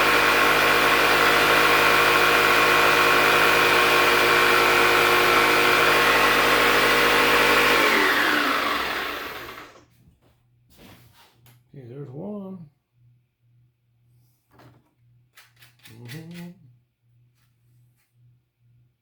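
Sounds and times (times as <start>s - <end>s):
electric drill running: 0.0s - 9.8s.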